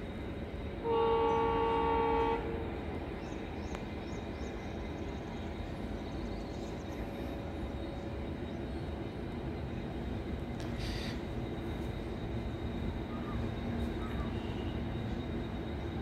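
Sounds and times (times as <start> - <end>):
train wheels rumbling on rails: 0.0 - 16.0
train horn blasting: 0.8 - 3.0.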